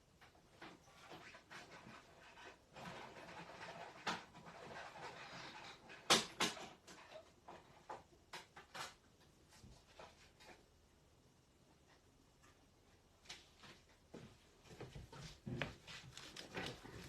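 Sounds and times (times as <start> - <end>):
rustling: 11.9 - 17.0.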